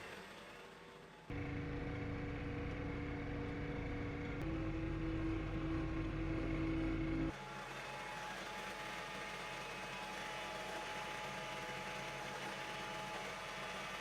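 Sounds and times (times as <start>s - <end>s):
motor humming: 1.3s - 7.4s.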